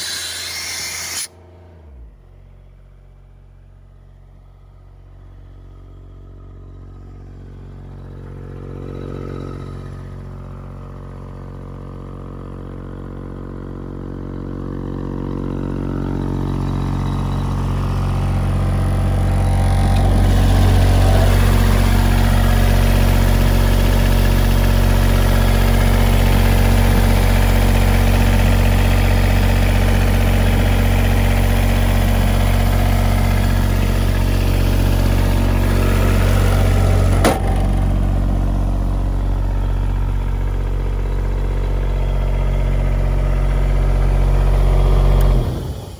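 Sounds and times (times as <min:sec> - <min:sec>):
air compressor diesel engine running: 0:00.0 - 0:01.3, 0:13.0 - 0:45.9.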